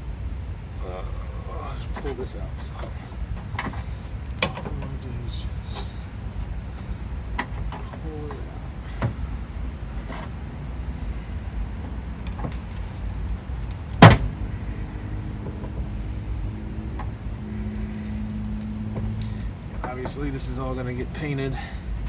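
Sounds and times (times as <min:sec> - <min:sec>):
low steady hum: 0:00.0 - 0:22.0
loud metal clank: 0:13.9 - 0:14.4.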